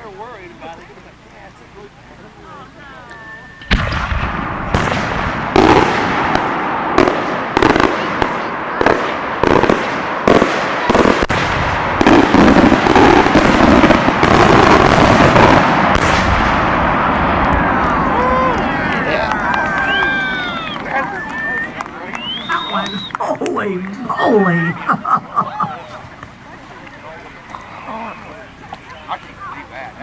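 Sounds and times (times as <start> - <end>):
fireworks breaks crackling: 3.6 - 24.0.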